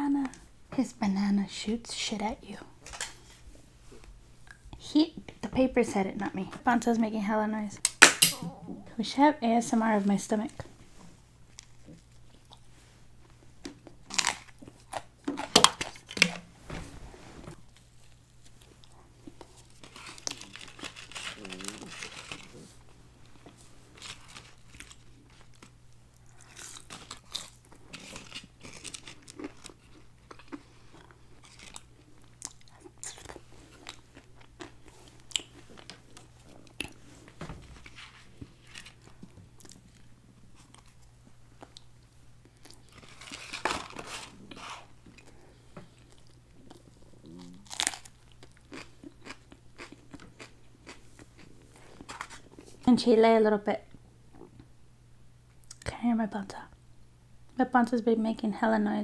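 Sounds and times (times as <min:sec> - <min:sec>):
steady low hum: 0:00.0 - 0:59.0
person chewing crunchy food: 0:13.7 - 0:16.2, 0:17.8 - 0:37.1, 0:37.8 - 0:52.7.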